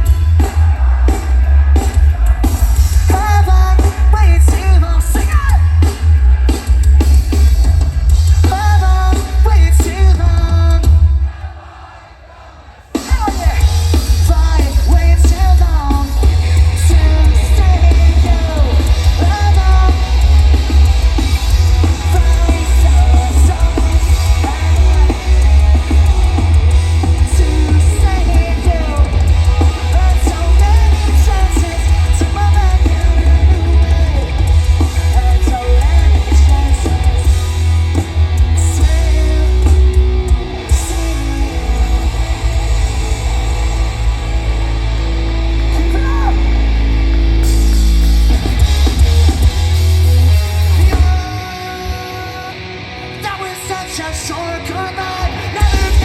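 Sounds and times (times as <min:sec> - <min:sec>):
amplified electric guitars: 0:00.0 - 0:11.2, 0:13.0 - 0:56.0
booming bass: 0:00.0 - 0:11.2, 0:13.6 - 0:51.2
pounding drum kit: 0:00.0 - 0:11.9, 0:12.8 - 0:52.2, 0:55.2 - 0:56.0
sung vocals: 0:00.0 - 0:47.3, 0:48.8 - 0:56.0.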